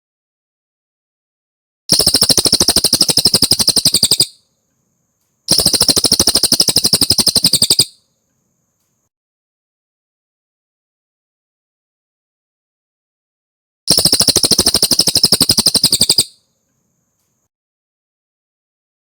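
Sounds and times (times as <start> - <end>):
bird trilling: 1.9 - 4.4, 5.5 - 8.0, 13.9 - 16.4.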